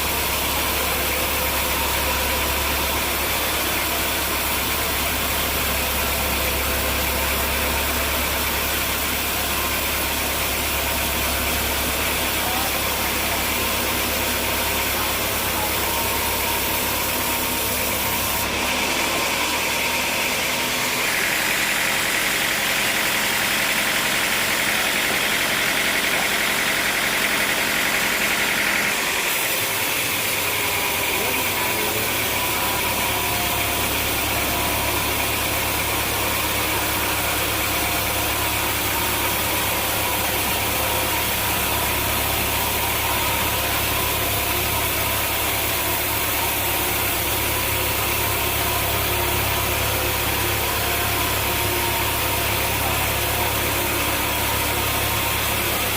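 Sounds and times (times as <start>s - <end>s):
higher harsh machine noise: 0.0s - 55.9s
sawmill machinery running: 0.0s - 55.9s.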